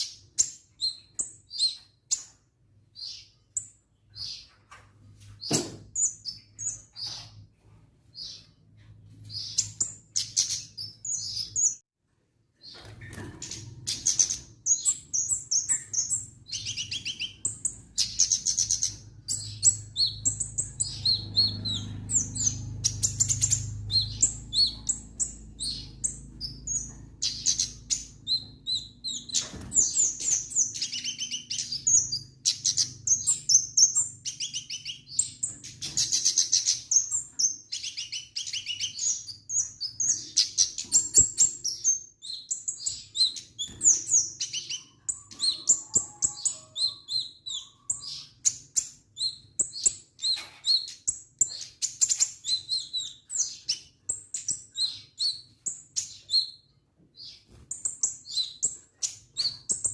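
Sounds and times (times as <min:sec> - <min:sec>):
songbird singing: 0:12.6 - 0:59.9.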